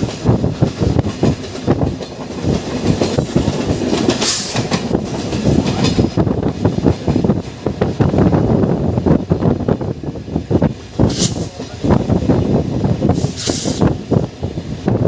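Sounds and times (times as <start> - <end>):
train wheels clattering over joints: 0.0 - 8.6.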